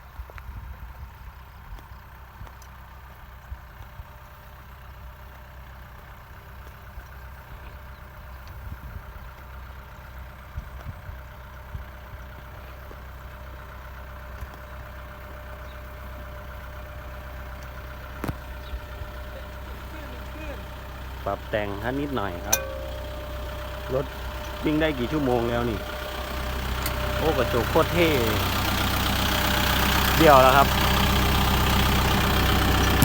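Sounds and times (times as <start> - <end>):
tractor diesel engine running: 0.0 - 33.0
sharp click: 22.5 - 23.1.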